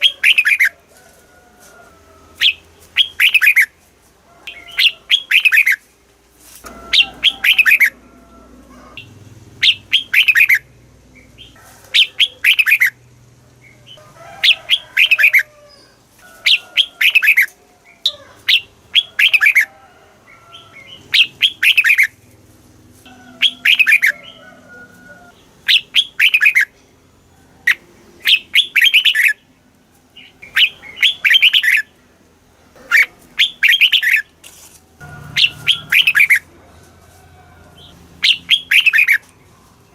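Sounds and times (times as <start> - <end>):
bird singing whistled notes: 9.6 - 13.0, 25.7 - 26.7, 27.7 - 29.4, 30.2 - 31.9, 33.0 - 34.2, 35.4 - 36.4, 38.2 - 39.3.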